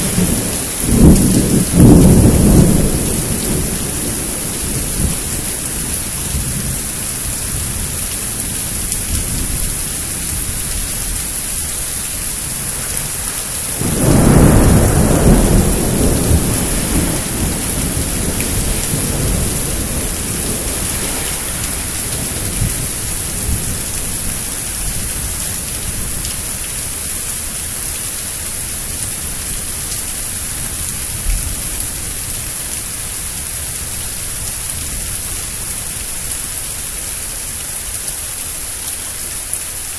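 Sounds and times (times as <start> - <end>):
thunder rolling: 0.0 - 6.6, 13.1 - 24.2
steady rain hissing: 0.0 - 39.9.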